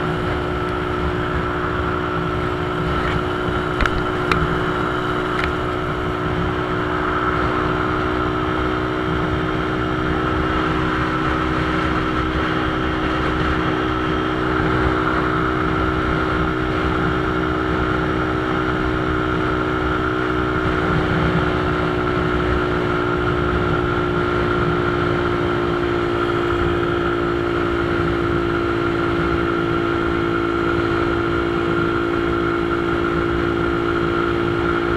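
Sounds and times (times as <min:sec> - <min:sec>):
motorcycle engine running: 0:00.0 - 0:34.9
road and wind noise: 0:00.0 - 0:34.9
sharp clicks: 0:03.0 - 0:05.8.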